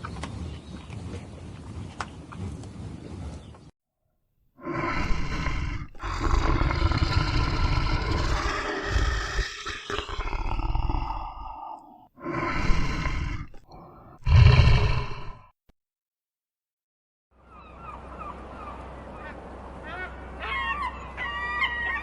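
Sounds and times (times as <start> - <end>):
large animal roaring: 4.6 - 15.5.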